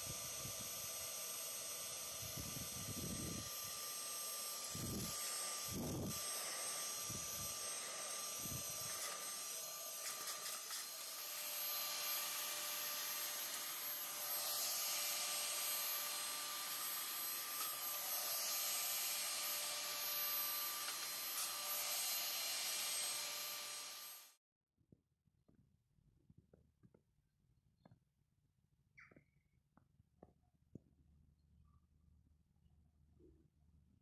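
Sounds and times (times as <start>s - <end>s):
appliance motor whining: 0.0s - 24.4s.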